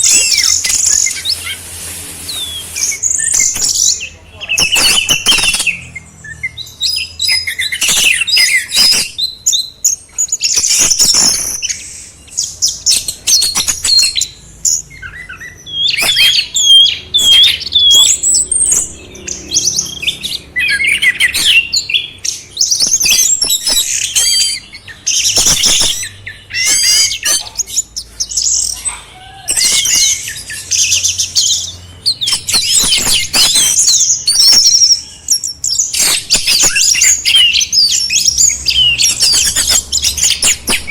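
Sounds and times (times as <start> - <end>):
songbird chirps and trills: 0.0 - 40.9.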